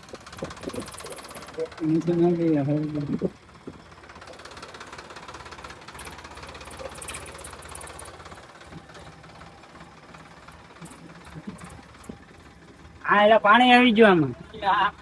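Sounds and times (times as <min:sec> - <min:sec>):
light metallic clatter: 0:00.0 - 0:12.8
diesel engine knocking: 0:00.0 - 0:15.0.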